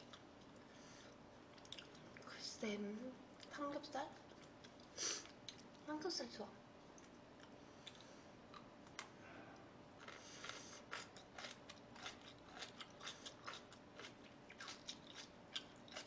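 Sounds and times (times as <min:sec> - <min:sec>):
chewing crisp food: 0:01.5 - 0:02.3, 0:04.1 - 0:05.8, 0:06.9 - 0:09.2, 0:10.0 - 0:16.0.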